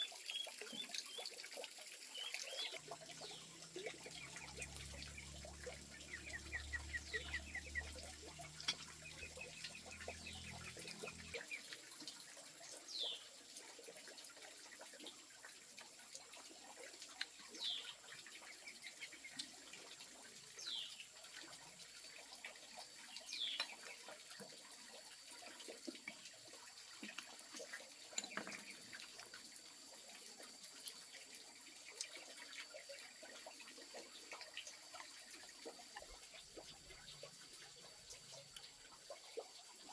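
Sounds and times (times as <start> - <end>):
birds chirping: 0.0 - 11.7, 17.5 - 19.6, 23.0 - 24.1.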